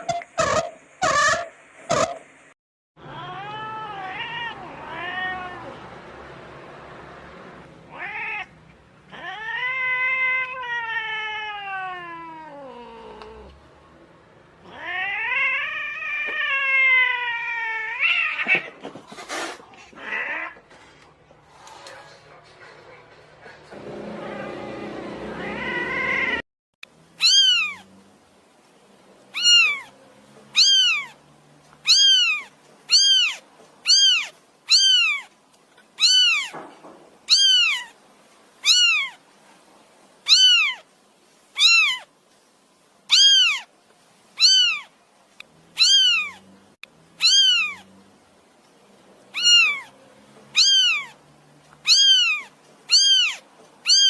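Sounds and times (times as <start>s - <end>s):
cat meowing: 3.0s - 5.8s, 7.9s - 13.5s, 14.6s - 18.8s, 20.0s - 20.6s, 25.4s - 26.4s, 27.2s - 27.9s, 29.3s - 29.9s, 30.5s - 31.2s, 31.8s - 35.3s, 36.0s - 36.6s, 37.3s - 38.0s, 38.6s - 39.2s, 40.2s - 40.9s, 41.6s - 42.1s, 43.1s - 43.7s, 44.4s - 44.9s, 45.8s - 46.4s, 47.2s - 47.9s, 49.3s - 51.2s, 51.8s - 54.0s.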